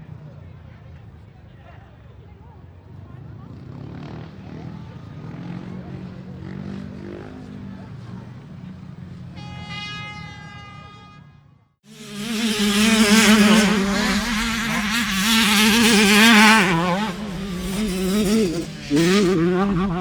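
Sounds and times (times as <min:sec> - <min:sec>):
racing engine buzzing: 0:11.9 - 0:20.0
racing engine revving: 0:11.9 - 0:20.0.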